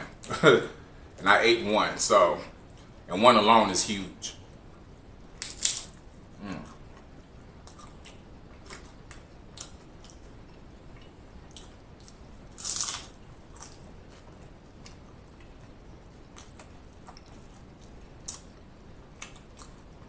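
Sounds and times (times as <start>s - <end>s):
tortilla chips crunching: 5.4s - 6.6s, 11.5s - 13.9s.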